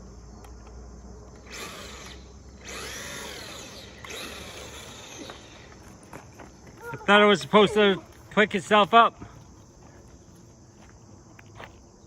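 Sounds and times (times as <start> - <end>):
toy truck electric motor whining: 1.4 - 6.0.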